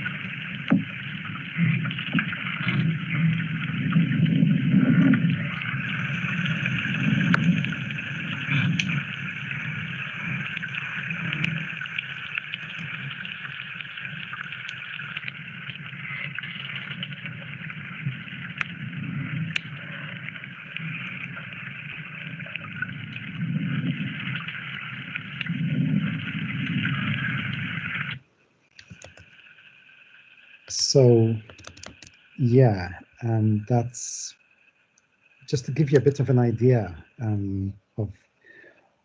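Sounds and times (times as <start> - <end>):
low underwater swells: 0.0 - 28.2
underwater crackle of clicks: 0.0 - 32.4, 34.8 - 36.4.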